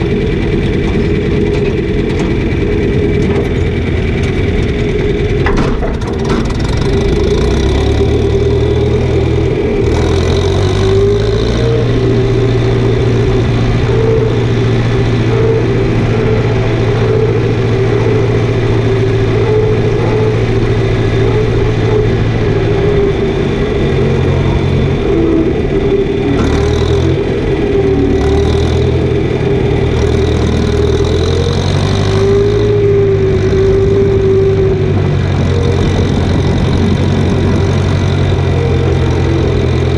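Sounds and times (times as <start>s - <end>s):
farm machinery engine running: 0.0s - 39.9s
wavering whine: 0.0s - 39.9s.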